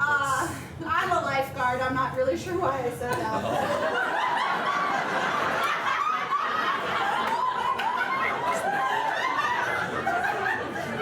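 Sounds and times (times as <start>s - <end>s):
audience laughing: 3.4s - 11.0s.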